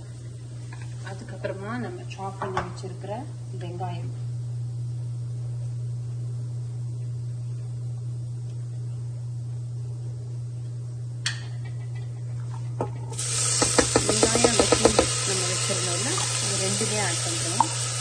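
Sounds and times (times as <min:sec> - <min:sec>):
steady low hum: 0:00.0 - 0:18.0
onions sizzling in hot oil: 0:13.1 - 0:18.0
container tapping against pot: 0:13.5 - 0:15.2.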